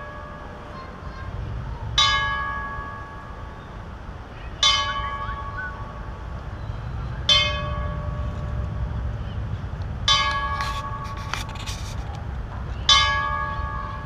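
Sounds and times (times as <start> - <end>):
bell tolling slowly: 2.0 - 3.6, 4.6 - 9.1
low rumble: 5.0 - 14.0.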